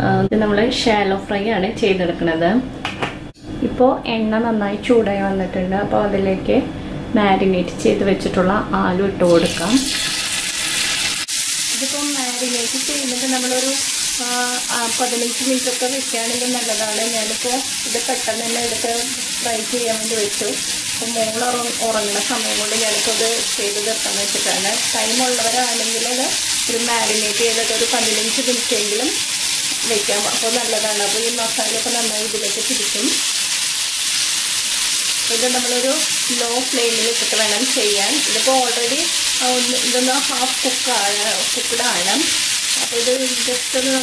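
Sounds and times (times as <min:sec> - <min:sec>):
oil sizzling in a pan: 0:09.3 - 0:44.0.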